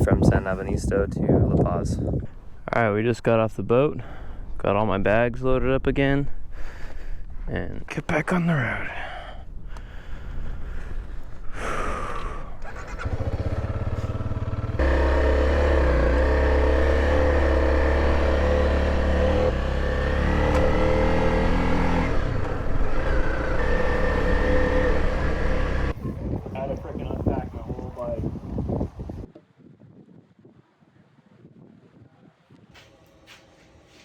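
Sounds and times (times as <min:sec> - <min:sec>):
motorcycle engine running: 0:12.6 - 0:28.2.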